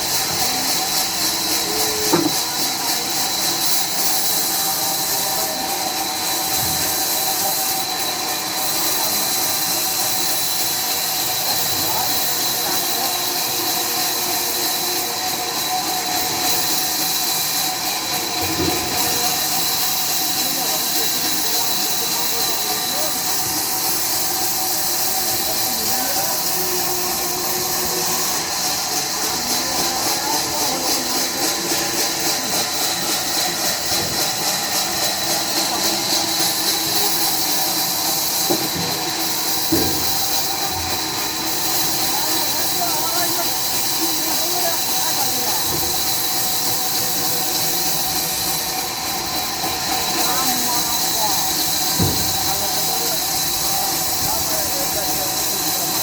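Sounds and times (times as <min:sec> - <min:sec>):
sawmill machinery hiss and whine: 0:00.0 - 0:56.0.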